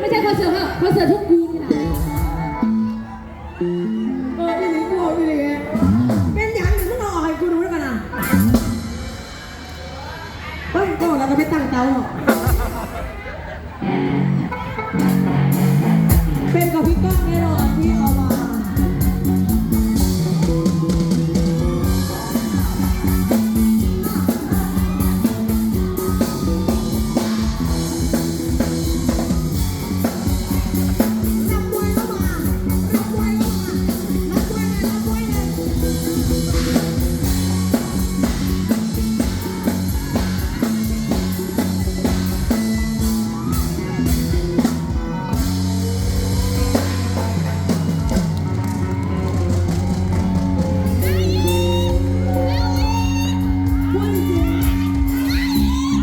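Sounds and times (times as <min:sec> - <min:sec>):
drum kit: 0:00.0 - 0:03.0, 0:05.7 - 0:13.2, 0:14.1 - 0:56.0
bass guitar: 0:00.0 - 0:56.0
electric guitar: 0:12.0 - 0:56.0.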